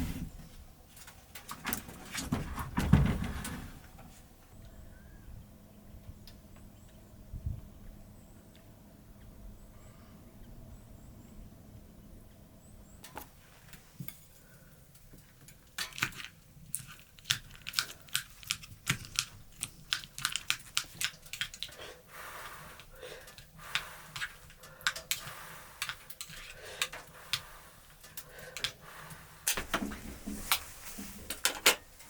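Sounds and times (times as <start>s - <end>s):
small hard objects clicking: 15.0s - 22.0s, 22.7s - 29.8s.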